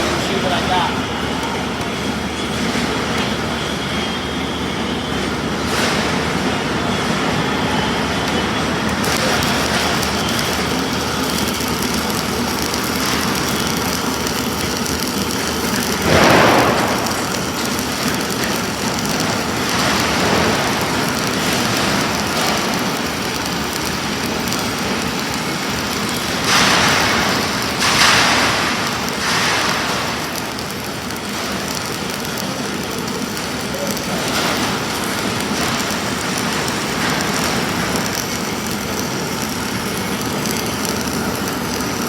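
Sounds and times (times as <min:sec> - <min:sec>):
crackling welding arc: 0:00.0 - 0:42.0.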